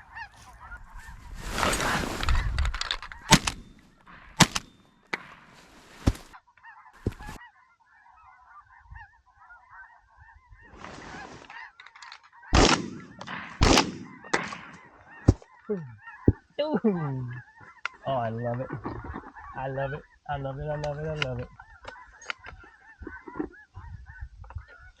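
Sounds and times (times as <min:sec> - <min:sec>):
geese honking: 0:00.0 - 0:25.0.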